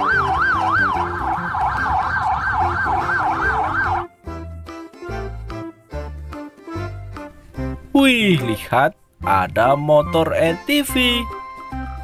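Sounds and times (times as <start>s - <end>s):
police siren yelping: 0.0s - 4.1s
background music: 0.0s - 12.0s.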